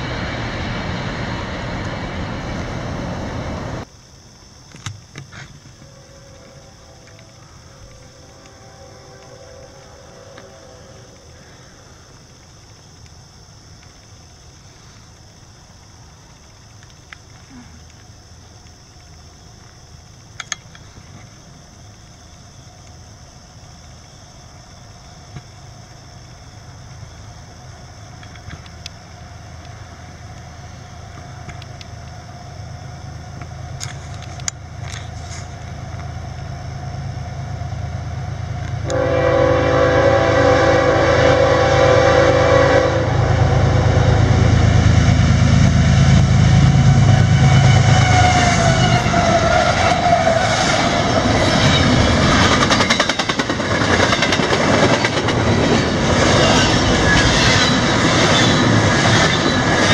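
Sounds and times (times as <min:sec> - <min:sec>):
diesel locomotive rumble: 0:00.0 - 0:03.9, 0:26.5 - 0:59.9
train horn blast: 0:05.8 - 0:11.2, 0:38.8 - 0:45.0, 0:46.4 - 0:50.7
train wheels clicking: 0:45.0 - 0:59.9.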